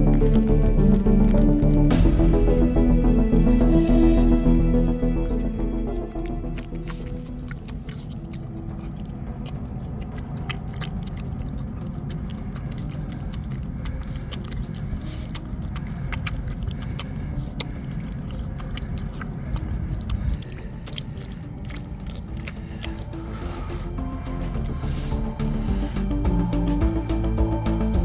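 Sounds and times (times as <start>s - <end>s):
low rumble: 0.0s - 12.1s, 22.3s - 28.0s
puppy chewing with sharp clicks: 5.0s - 28.0s.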